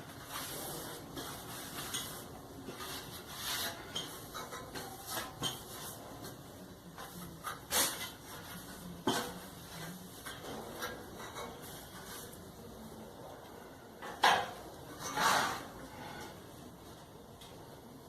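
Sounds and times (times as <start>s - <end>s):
parts rubbing and scraping: 0.0s - 6.4s, 14.9s - 16.4s.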